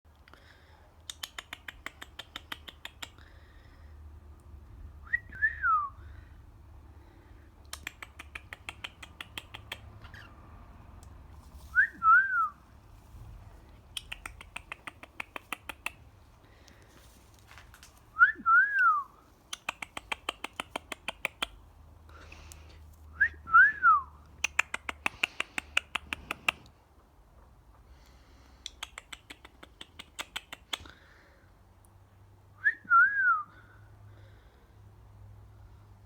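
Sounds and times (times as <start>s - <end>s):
cockatiel rapid clicks: 1.0s - 3.3s, 7.6s - 10.3s, 13.8s - 16.1s, 19.5s - 21.6s, 24.4s - 26.7s, 28.6s - 31.0s.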